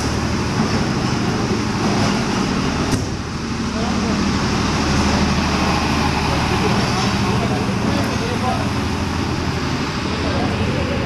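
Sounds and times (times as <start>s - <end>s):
train rumbling slowly: 0.0s - 11.0s
murmur of voices: 5.3s - 11.0s.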